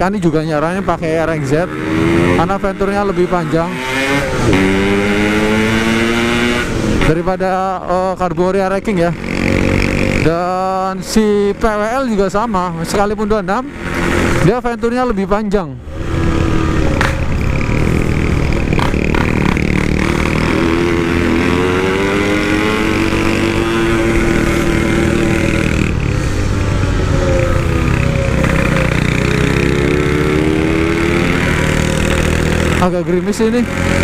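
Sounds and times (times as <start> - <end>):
two-stroke motorcycle engine accelerating: 0.0 - 14.8, 15.9 - 34.0.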